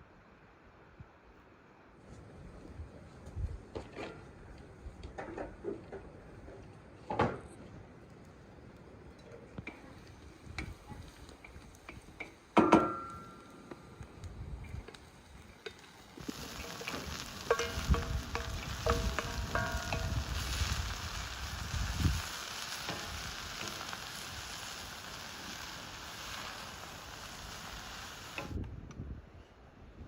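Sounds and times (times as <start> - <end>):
food sizzling in hot oil: 14.6 - 28.6
stirring clinks and knocks: 16.4 - 20.4.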